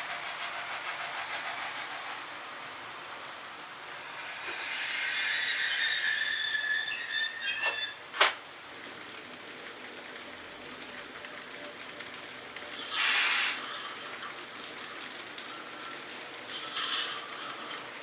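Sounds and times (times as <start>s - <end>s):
model train running noise: 0.0s - 7.9s, 8.5s - 18.0s
high squeal: 4.0s - 8.1s.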